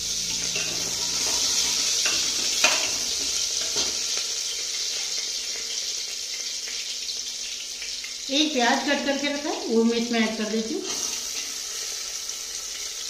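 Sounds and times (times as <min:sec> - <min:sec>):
chillies sizzling in hot oil: 0:00.0 - 0:13.0
metal spatula scraping a pot: 0:00.2 - 0:05.8, 0:10.8 - 0:11.9.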